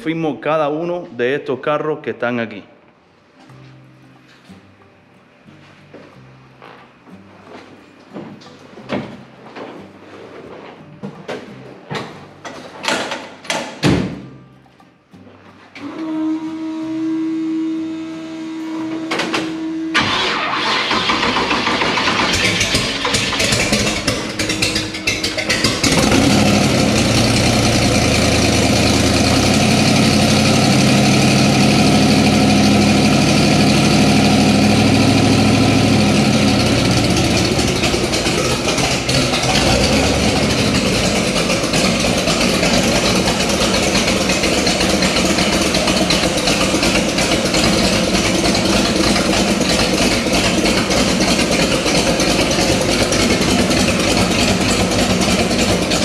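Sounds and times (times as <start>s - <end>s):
car engine idling: 19.6s - 56.0s.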